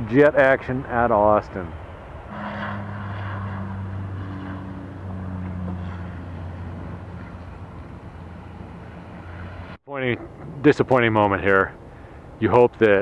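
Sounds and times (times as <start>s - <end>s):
jet engine drone: 2.0s - 9.8s.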